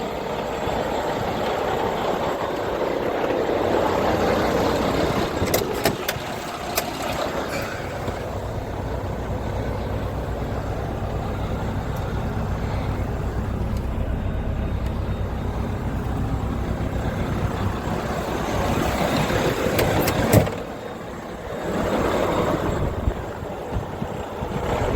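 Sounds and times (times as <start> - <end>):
truck diesel engine idling: 0.0 - 24.9.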